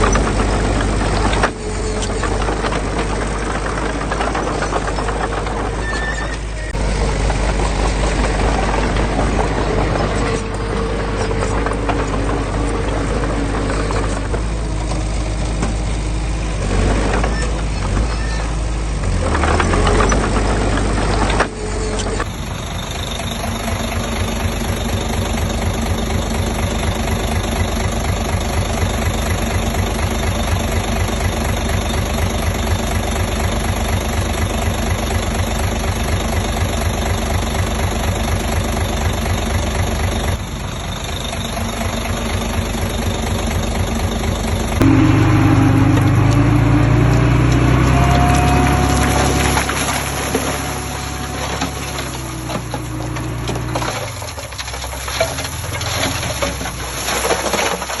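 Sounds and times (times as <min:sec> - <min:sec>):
diesel engine of heavy machinery: 0:00.0 - 0:58.0
low hum: 0:44.5 - 0:54.4.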